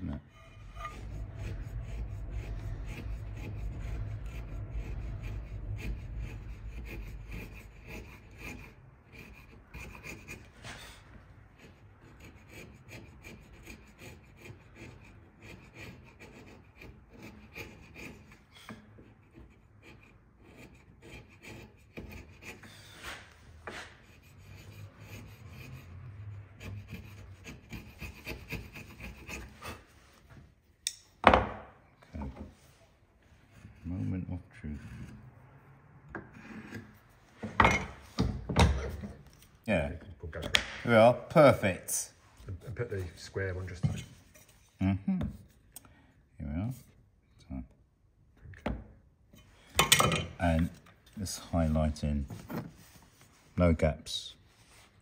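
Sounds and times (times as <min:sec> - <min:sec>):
chisel scraping wood: 0:00.0 - 0:30.5, 0:32.2 - 0:35.4, 0:36.1 - 0:39.7, 0:42.8 - 0:45.7.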